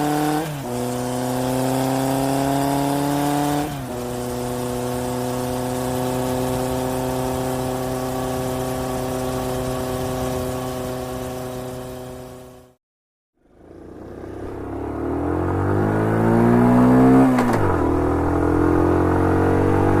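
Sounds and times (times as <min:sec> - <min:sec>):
truck engine running: 0:03.8 - 0:12.8.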